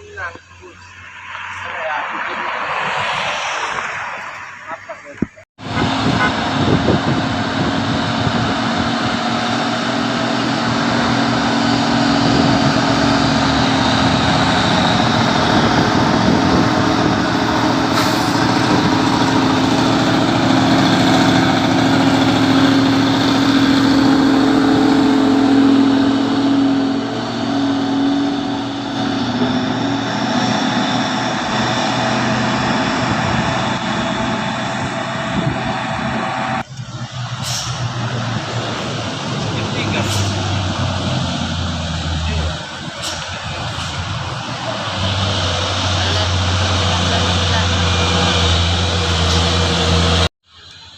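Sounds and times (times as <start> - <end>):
truck diesel engine under load: 0.0 - 50.9.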